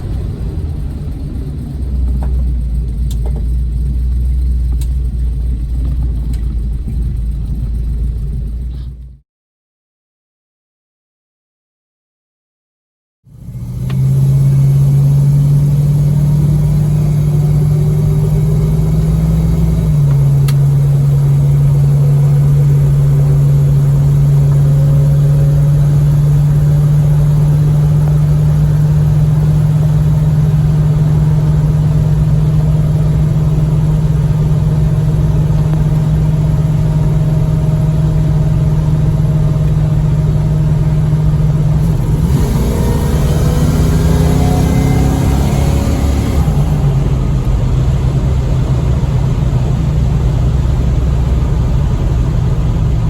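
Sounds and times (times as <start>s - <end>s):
car engine droning: 0.0s - 9.2s, 13.3s - 53.0s.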